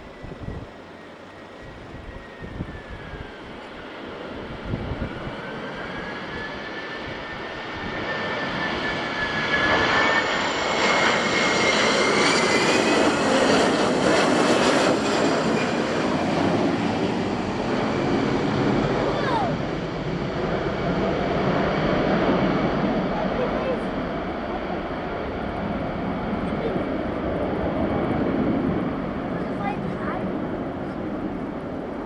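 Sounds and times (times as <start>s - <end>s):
jet engine rumble with fan whine: 0.0s - 32.0s.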